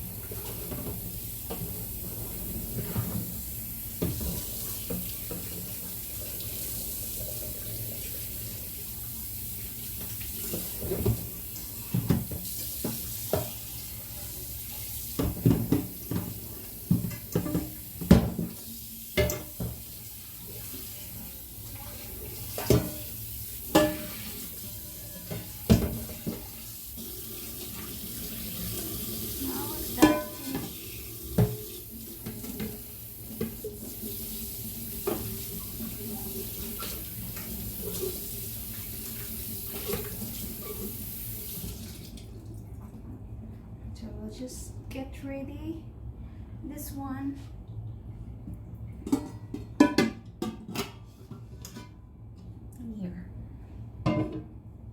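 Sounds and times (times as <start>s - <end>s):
tap running into sink: 4.0s - 6.0s, 9.9s - 13.7s, 15.2s - 19.9s, 25.3s - 26.6s, 34.9s - 38.1s
knocks and thumps in basin: 15.2s - 18.6s, 25.2s - 26.6s, 30.0s - 30.8s, 54.0s - 54.6s.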